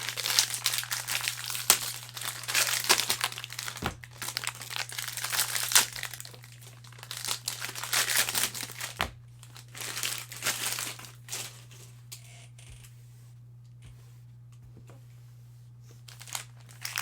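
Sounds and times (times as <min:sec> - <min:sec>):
wrapper crinkling: 0:00.0 - 0:11.9, 0:16.1 - 0:17.0.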